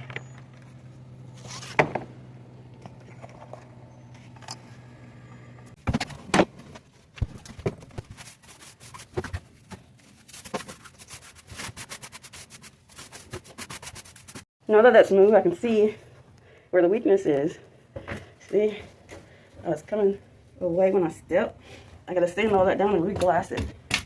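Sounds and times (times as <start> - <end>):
low steady hum: 0.0 - 8.3
hand sanding fiberglass: 10.2 - 14.5.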